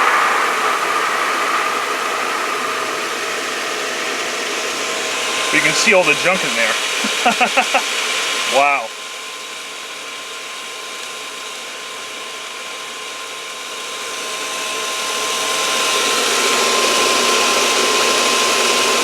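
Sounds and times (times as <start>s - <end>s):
water rushing through filter: 0.0s - 7.1s.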